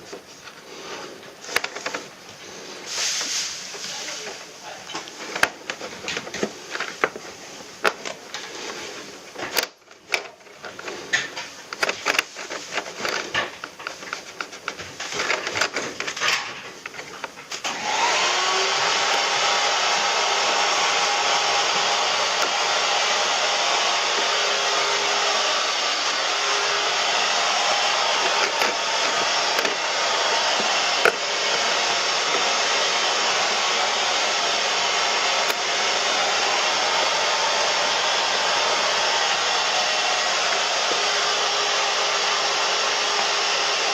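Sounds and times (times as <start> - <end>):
clatter of parts handled: 9.3 - 17.6
cleaning machine motor running: 17.6 - 43.9.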